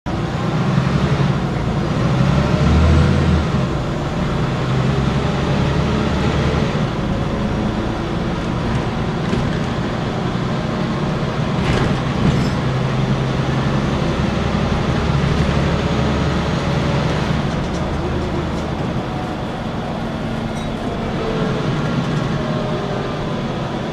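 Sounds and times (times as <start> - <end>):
bus diesel engine droning: 0.1 - 23.9.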